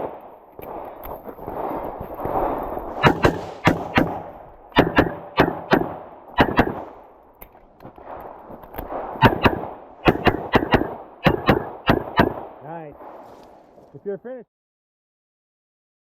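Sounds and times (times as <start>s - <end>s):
rapid pistol shots: 2.4s - 7.1s, 8.0s - 13.2s.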